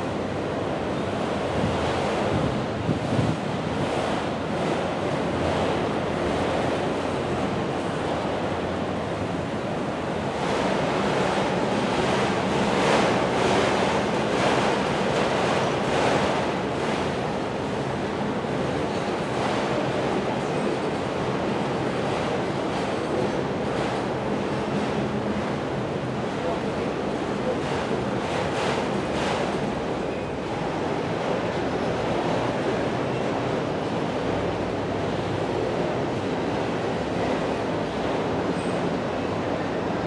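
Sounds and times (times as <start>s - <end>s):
freight train rolling past: 0.0s - 40.0s
wind on microphone: 1.1s - 5.5s.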